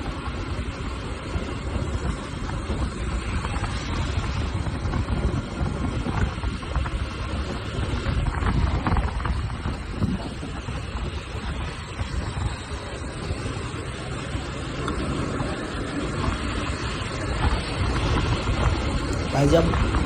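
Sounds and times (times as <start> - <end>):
motorcycle engine rumble: 0.0 - 20.0
wind buffeting microphone: 0.0 - 20.0.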